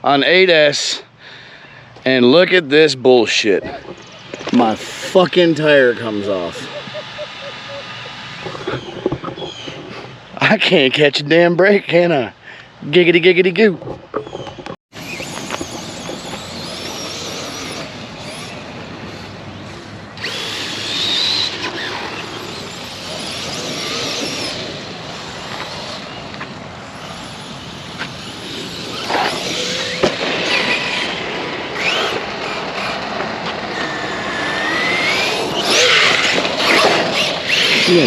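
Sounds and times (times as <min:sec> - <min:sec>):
tyre and ground noise: 0:01.9 - 0:38.0
electric motor whining: 0:15.0 - 0:38.0.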